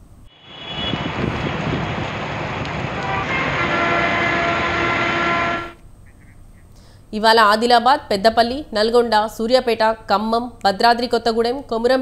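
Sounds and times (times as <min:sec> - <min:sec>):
traffic tyres hissing: 0:00.3 - 0:05.8
vehicle horn steady note: 0:00.4 - 0:01.5, 0:02.9 - 0:05.8
heavy rain on road: 0:00.4 - 0:05.8.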